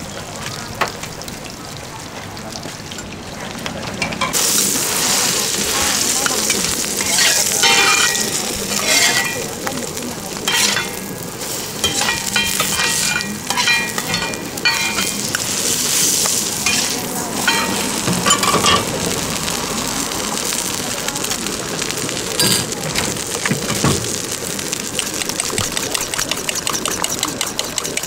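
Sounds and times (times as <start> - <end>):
omelet sizzling in hot oil: 2.4 - 28.0
metal spatula scraping a wok: 6.5 - 9.7, 10.4 - 15.6, 16.6 - 18.9.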